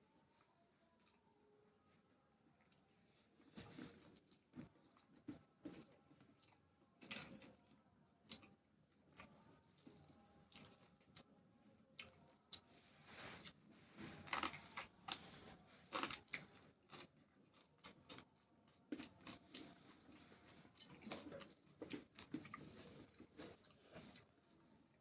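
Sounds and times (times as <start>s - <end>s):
chewing raw vegetables crunches: 13.4s - 23.9s.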